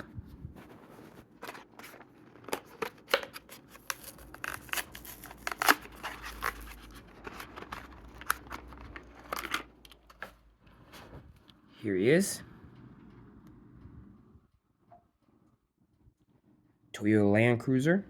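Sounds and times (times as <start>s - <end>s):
plastic crinkling: 0.6s - 10.4s
scissors snipping plastic: 1.5s - 9.6s.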